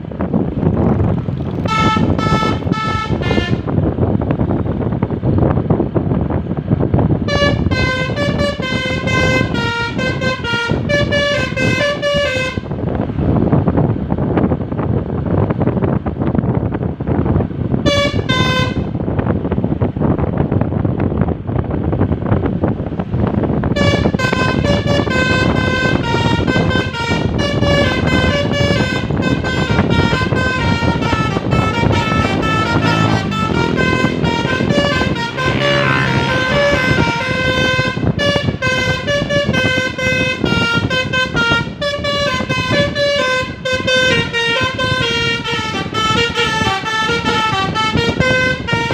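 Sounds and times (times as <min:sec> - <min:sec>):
engine and road noise: 0:00.0 - 0:48.9
musical bus horn playing: 0:01.6 - 0:03.9, 0:07.2 - 0:13.0, 0:17.8 - 0:19.0, 0:23.7 - 0:48.9.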